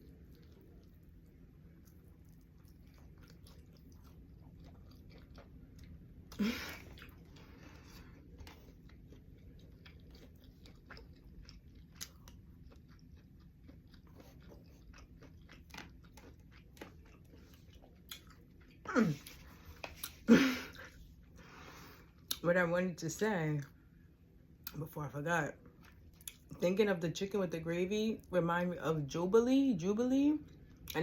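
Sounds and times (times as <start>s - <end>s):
wet chewing and mouth smacks: 0.0s - 20.2s, 25.6s - 26.6s.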